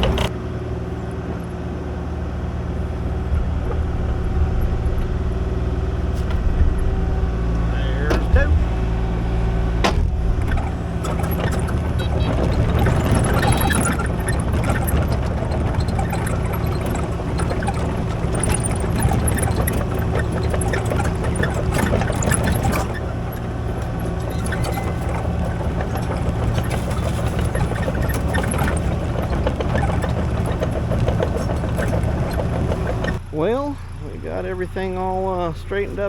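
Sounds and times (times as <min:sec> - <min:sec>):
excavator clanks and knocks: 0:00.0 - 0:00.4, 0:02.5 - 0:36.0
diesel engine running: 0:00.0 - 0:36.0.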